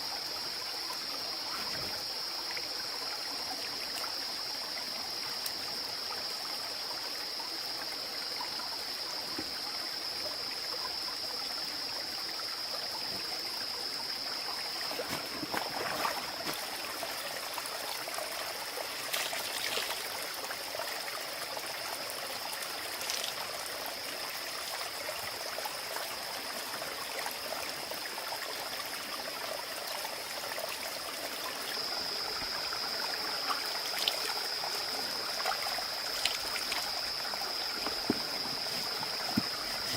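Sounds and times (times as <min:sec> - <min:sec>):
water trickling: 0:14.3 - 0:39.9.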